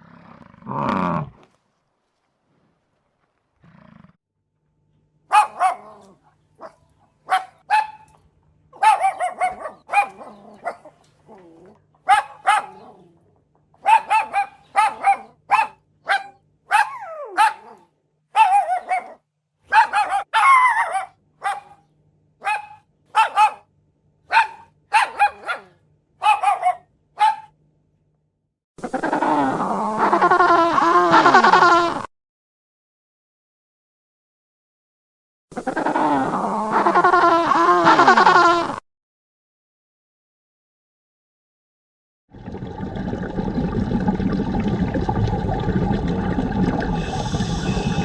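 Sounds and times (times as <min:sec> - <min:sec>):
dog barking: 0:05.3 - 0:08.2, 0:08.8 - 0:11.0, 0:12.0 - 0:13.1, 0:13.8 - 0:23.7, 0:24.3 - 0:27.6
dog yelping: 0:05.3 - 0:08.2, 0:08.8 - 0:13.2, 0:13.8 - 0:21.8, 0:22.4 - 0:23.6, 0:24.3 - 0:27.5.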